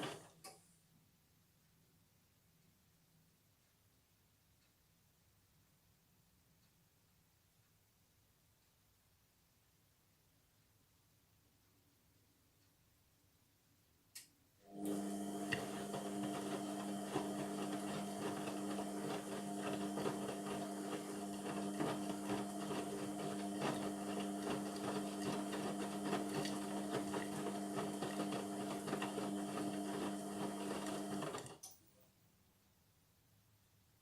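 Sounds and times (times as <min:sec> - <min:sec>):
washing machine motor hum: 0:00.0 - 0:00.4, 0:14.6 - 0:31.6.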